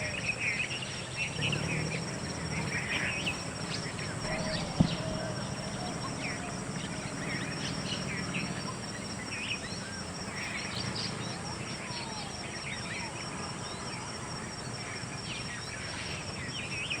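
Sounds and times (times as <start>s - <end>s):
continuous high buzz: 0.0s - 17.0s
songbirds chirping: 0.0s - 17.0s
low steady rumble: 0.8s - 13.8s.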